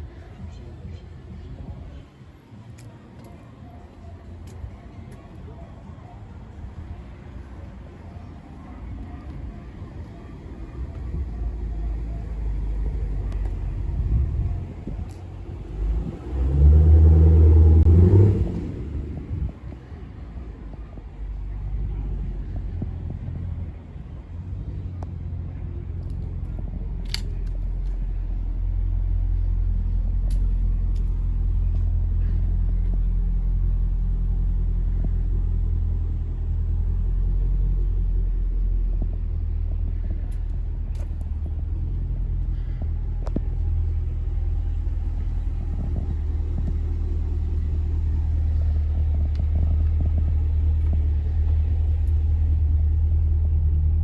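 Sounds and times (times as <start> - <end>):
car engine idling: 2.8 - 54.0.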